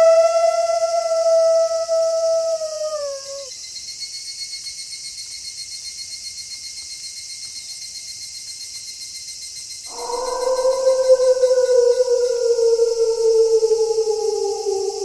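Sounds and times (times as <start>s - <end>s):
wolf howling: 0.0s - 3.5s, 9.9s - 15.0s
crickets trilling: 0.0s - 4.2s, 9.9s - 15.0s.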